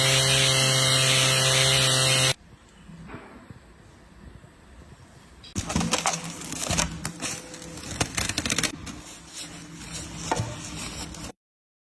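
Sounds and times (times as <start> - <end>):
steady mechanical hum: 2.3 - 11.4.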